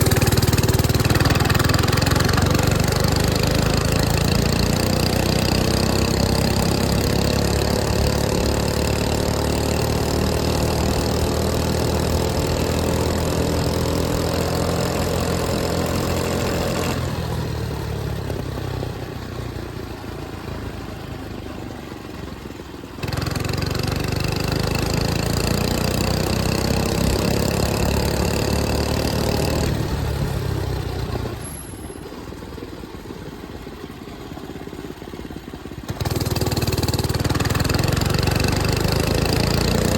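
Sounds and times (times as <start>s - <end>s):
mini bike engine revving: 0.0s - 17.5s, 22.9s - 32.3s, 34.3s - 39.9s.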